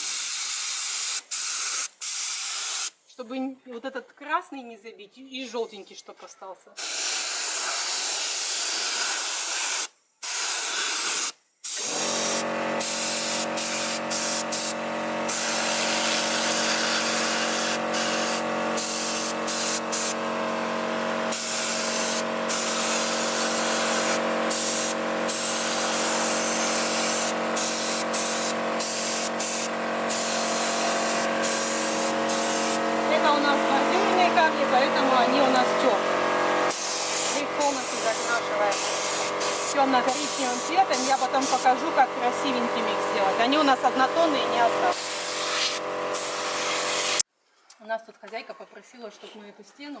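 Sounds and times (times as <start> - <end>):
paint spray gun hissing: 0.0 - 3.0, 6.8 - 47.3
steady motor hum: 11.8 - 46.6.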